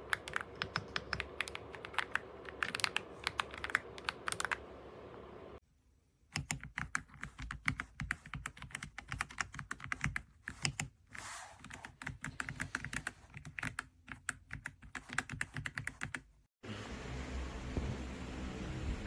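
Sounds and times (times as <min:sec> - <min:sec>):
mechanical keyboard typing: 0:00.0 - 0:04.7, 0:06.3 - 0:10.9, 0:11.6 - 0:16.3.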